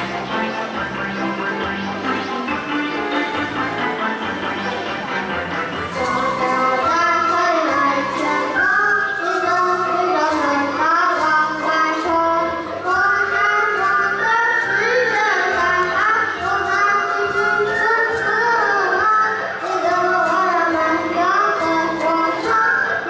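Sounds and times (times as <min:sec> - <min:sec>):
music with steady beat: 0:00.0 - 0:23.0
children singing: 0:05.9 - 0:23.0.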